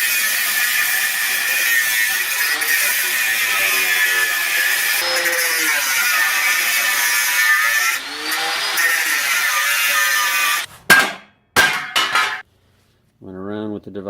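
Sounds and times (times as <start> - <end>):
power tool working metal: 0.0 - 10.7.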